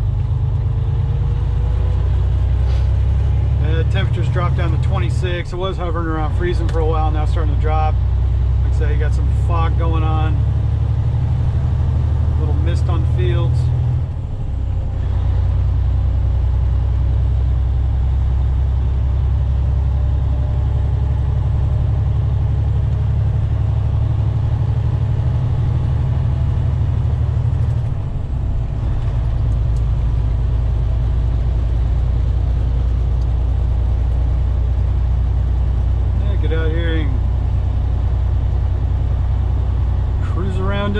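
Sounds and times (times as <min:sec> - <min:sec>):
road noise: 0:00.0 - 0:40.9
truck engine drone: 0:00.0 - 0:40.9.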